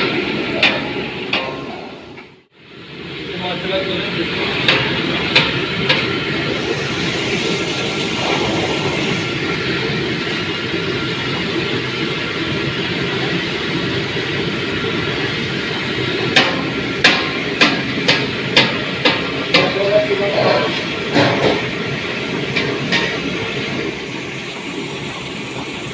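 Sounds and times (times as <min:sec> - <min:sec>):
utensil tapping a pan: 0:16.4 - 0:19.9.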